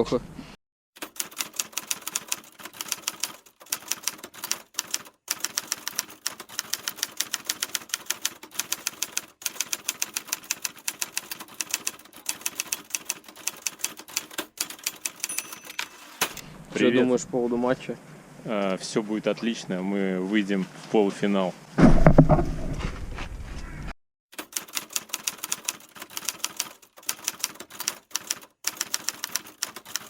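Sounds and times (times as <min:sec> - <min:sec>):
typewriter keys clicking: 0:01.0 - 0:16.4, 0:24.4 - 0:30.0.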